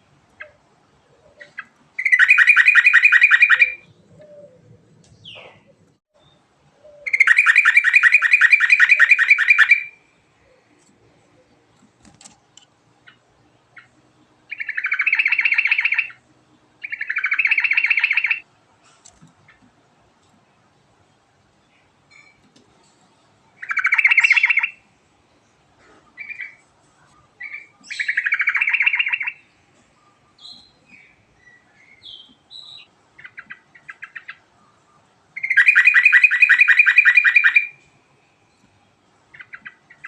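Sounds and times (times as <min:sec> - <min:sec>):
bird singing rapid repeated notes: 0:01.4 - 0:04.2, 0:05.1 - 0:10.2, 0:13.0 - 0:18.5, 0:23.4 - 0:24.9, 0:27.2 - 0:40.0.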